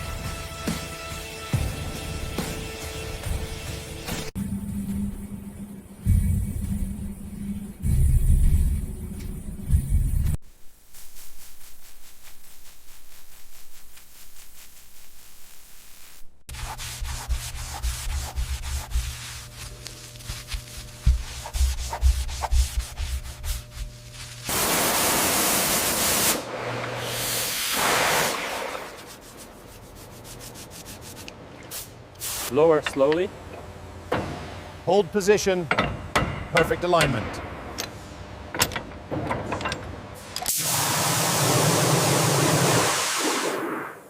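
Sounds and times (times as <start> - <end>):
rapid scraping and rubbing: 10.9 - 24.5
loud hiss: 24.4 - 29.0, 31.7 - 32.6, 40.2 - 44.0.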